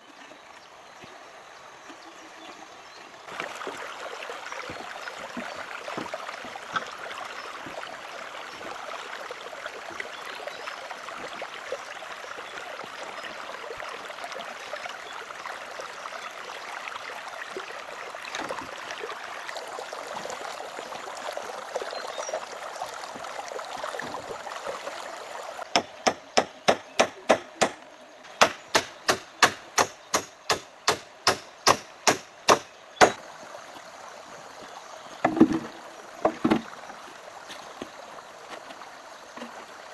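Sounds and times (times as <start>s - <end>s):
stream water rushing: 2.5s - 39.9s
tool striking wood: 25.7s - 33.2s.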